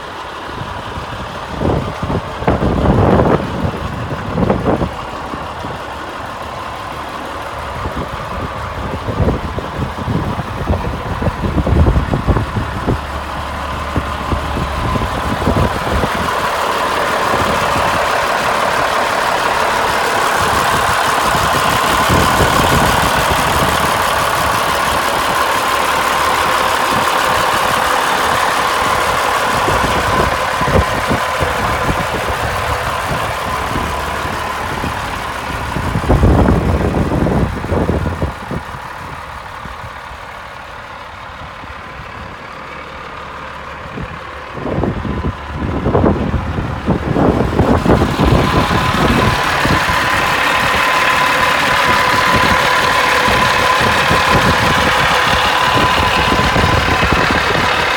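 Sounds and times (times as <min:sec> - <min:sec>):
diesel truck engine whining: 0:00.0 - 0:57.9.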